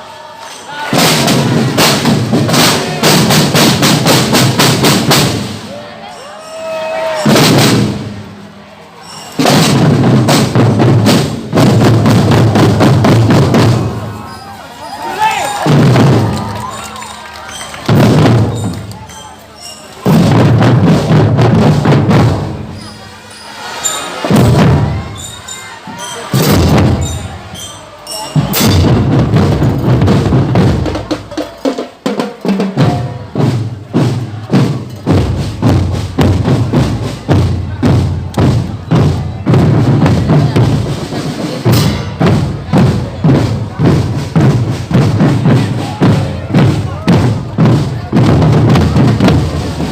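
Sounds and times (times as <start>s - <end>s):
drum band playing percussion: 0.4s - 49.9s
deep bass drums: 9.6s - 14.2s, 32.8s - 49.9s.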